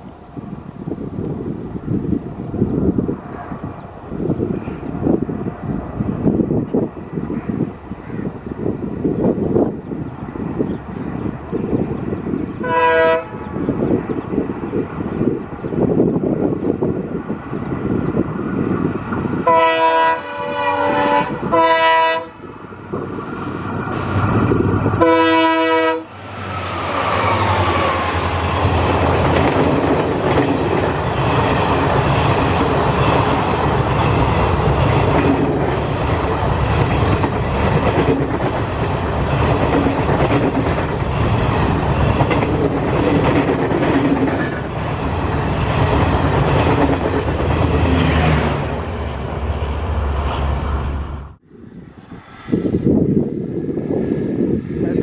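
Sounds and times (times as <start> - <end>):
locomotive engine passing: 0.0 - 55.0
locomotive horn blasts: 12.6 - 13.5, 19.4 - 22.4, 25.0 - 26.1.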